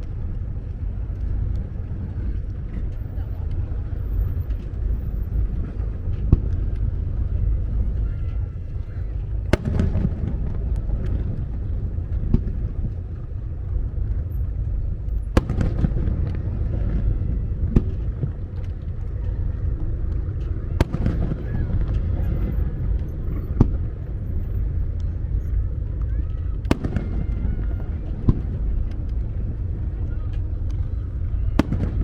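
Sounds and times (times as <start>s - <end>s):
low rumble of shell bursts: 0.3s - 32.0s
fireworks bangs: 9.5s - 12.6s, 15.2s - 18.4s, 20.7s - 24.8s, 26.5s - 30.0s, 31.1s - 32.0s.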